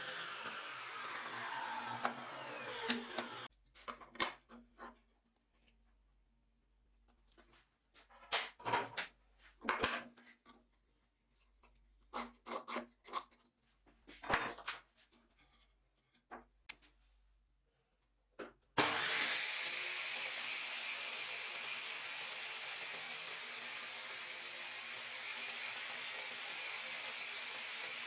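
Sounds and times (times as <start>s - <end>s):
power tool running: 0.0s - 3.5s, 18.8s - 28.0s
wood and tools knocking and scraping: 0.2s - 5.8s.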